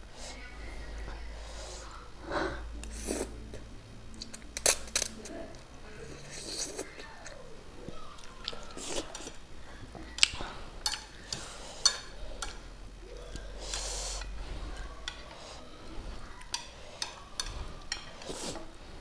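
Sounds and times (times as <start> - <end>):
person chewing: 1.2 - 19.0
utensils clicking against bowl: 4.2 - 5.6, 10.0 - 15.7, 16.3 - 18.7.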